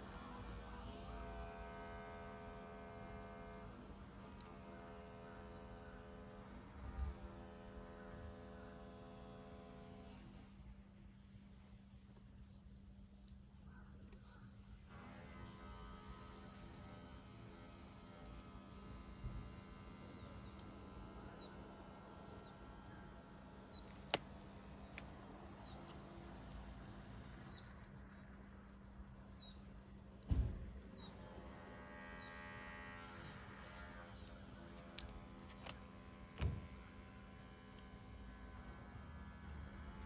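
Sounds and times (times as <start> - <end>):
wood fire popping and cracking: 23.6 - 28.5.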